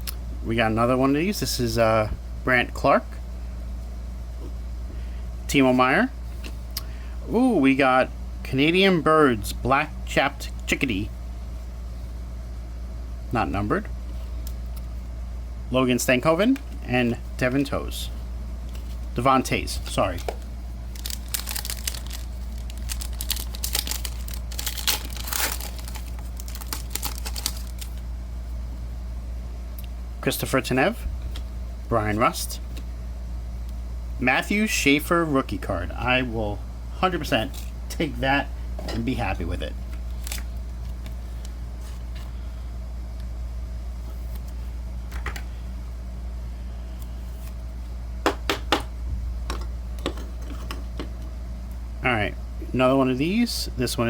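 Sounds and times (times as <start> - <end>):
steady low hum: 0.0 - 54.0
foil wrapper crinkling: 20.0 - 28.0, 40.0 - 42.2
sharp taps on cards: 48.3 - 48.9.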